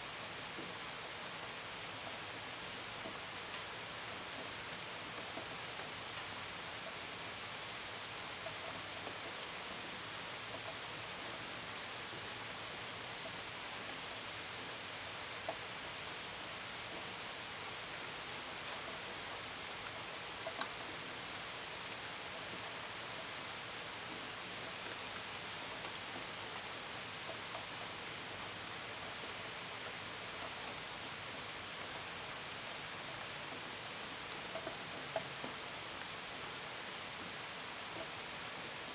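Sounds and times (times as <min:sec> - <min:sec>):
rain on window and gutters: 0:00.0 - 0:38.9
cricket chirps: 0:29.8 - 0:36.8, 0:37.5 - 0:38.6.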